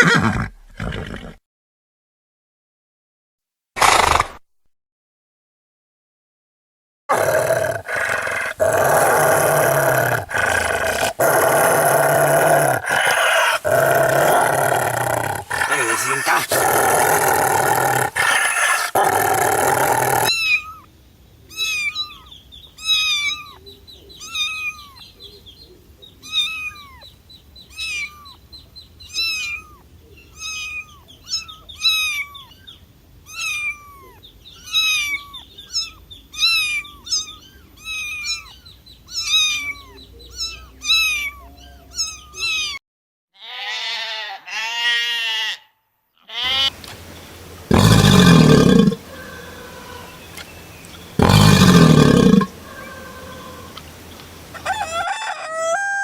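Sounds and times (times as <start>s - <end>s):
cat mewing: 7.1s - 20.8s, 51.2s - 53.8s.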